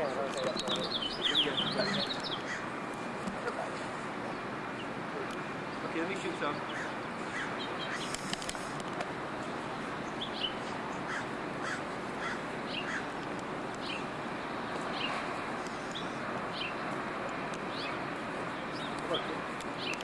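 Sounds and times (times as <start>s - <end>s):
birds calling: 0.0s - 20.0s
steady background hiss: 0.0s - 20.0s
higher bird chirps: 0.5s - 2.7s, 5.7s - 8.4s, 9.6s - 13.1s.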